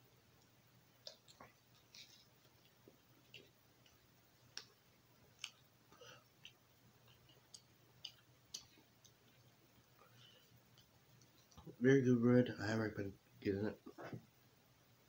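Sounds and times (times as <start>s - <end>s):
low steady hum: 0.0s - 15.0s
faint chewing mouth clicks: 0.4s - 11.7s.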